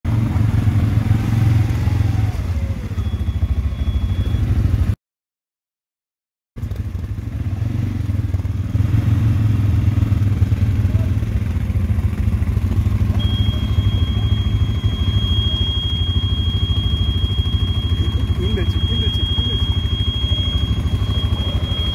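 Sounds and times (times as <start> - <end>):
atv engine running: 0.1 - 5.0, 6.6 - 21.9
steady high-pitched tone: 13.2 - 21.9.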